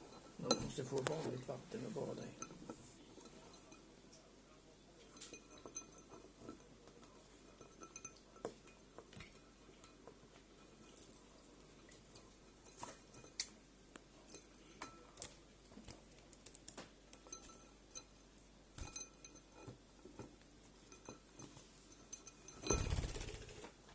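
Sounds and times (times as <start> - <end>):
bird pecking in a glass dish: 5.0 - 18.2, 18.8 - 23.6.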